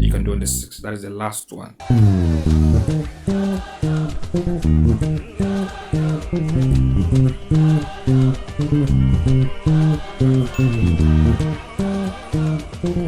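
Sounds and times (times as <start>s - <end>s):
electric bass guitar playing: 0.0s - 0.6s, 1.8s - 13.0s
background music: 1.8s - 13.0s.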